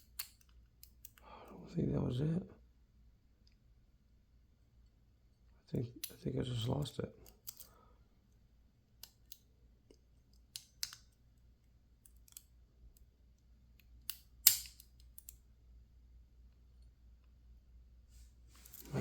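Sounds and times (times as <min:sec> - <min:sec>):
lock pick clicking in padlock: 0:00.0 - 0:01.2, 0:07.3 - 0:07.7, 0:10.3 - 0:11.2, 0:14.0 - 0:15.4.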